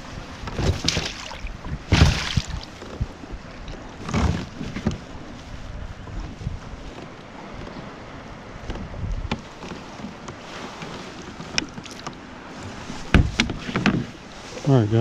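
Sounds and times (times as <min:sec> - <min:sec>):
wind noise on microphone: 0:00.0 - 0:07.1, 0:07.7 - 0:09.5, 0:12.6 - 0:15.0
rustling and bumping from handling: 0:08.7 - 0:14.2.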